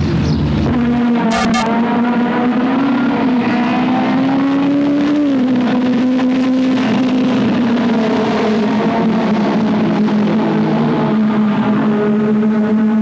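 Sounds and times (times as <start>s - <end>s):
car engine running: 0.1s - 3.4s.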